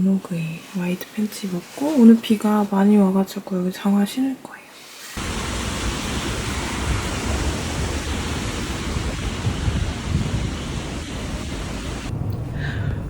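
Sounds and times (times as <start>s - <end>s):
heavy rain pouring: 5.1s - 13.0s.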